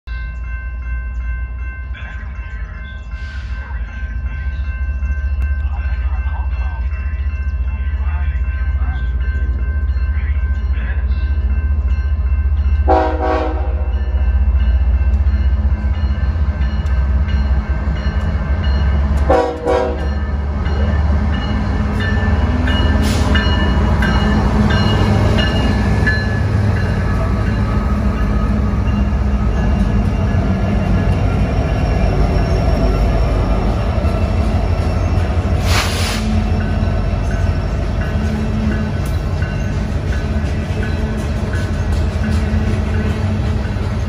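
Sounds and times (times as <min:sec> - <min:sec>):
diesel locomotive engine rumble: 0:00.1 - 0:44.0
wheels on rail: 0:00.1 - 0:44.0
train horn blast: 0:12.9 - 0:13.9, 0:19.2 - 0:20.2.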